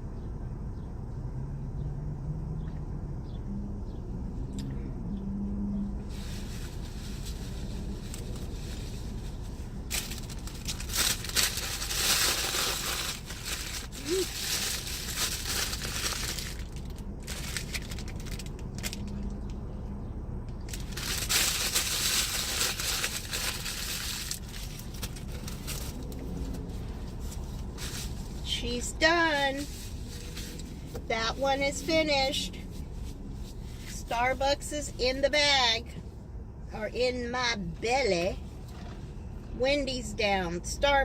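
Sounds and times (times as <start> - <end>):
paper wrappers crumpling: 9.9 - 19.2, 20.7 - 26.6.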